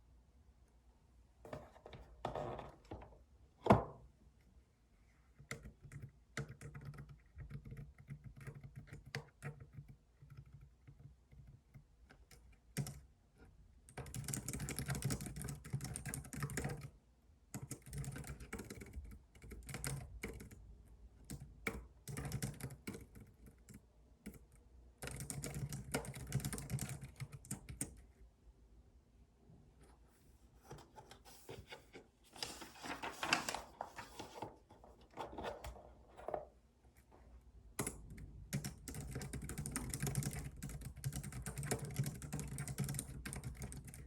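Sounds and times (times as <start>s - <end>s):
computer keyboard typing: 5.5s - 11.6s, 12.2s - 13.0s, 13.9s - 16.9s, 17.5s - 20.6s, 21.2s - 28.0s, 37.8s - 44.0s.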